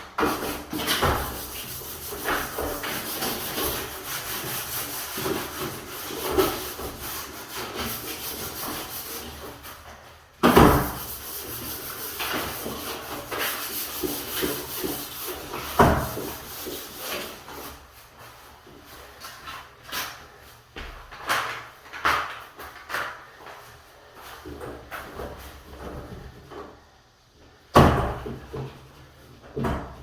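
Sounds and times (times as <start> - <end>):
scraping strokes on wood: 0.2 - 9.8, 10.4 - 17.9.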